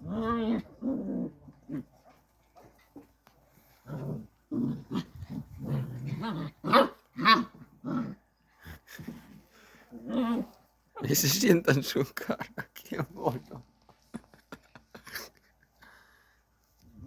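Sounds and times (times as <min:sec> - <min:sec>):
puppies growling and yapping: 0:00.0 - 0:11.0.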